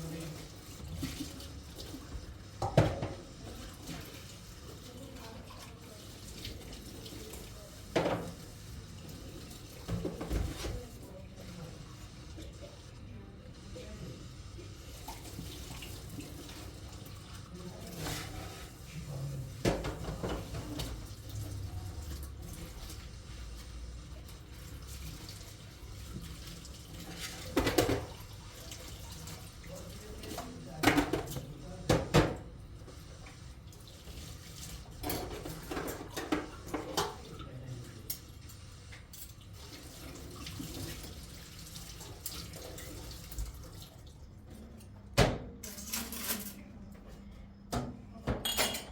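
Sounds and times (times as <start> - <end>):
tap water running into sink: 0.0 - 12.9, 14.6 - 44.2
dishes knocking and clattering: 2.6 - 3.2, 7.9 - 8.4, 9.8 - 10.8, 19.6 - 21.0, 27.5 - 28.2, 30.8 - 32.4, 35.0 - 37.2, 47.7 - 48.9.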